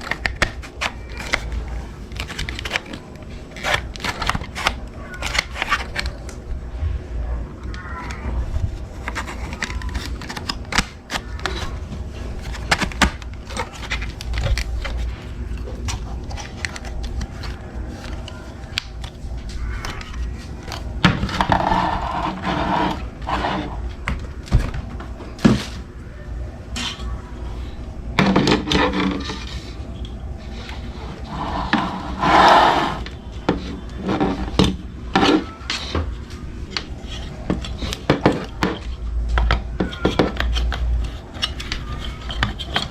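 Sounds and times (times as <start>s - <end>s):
hard objects clicking and scraping: 0.0s - 6.6s, 7.5s - 25.9s, 26.7s - 42.9s.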